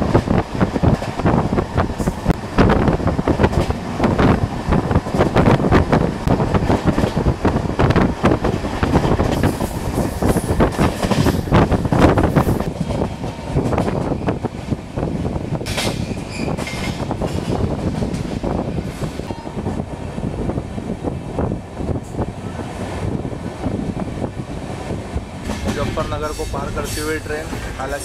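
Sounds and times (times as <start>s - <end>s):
train rushing noise: 0.0s - 28.0s
wheels clattering over rail joints: 25.4s - 27.8s.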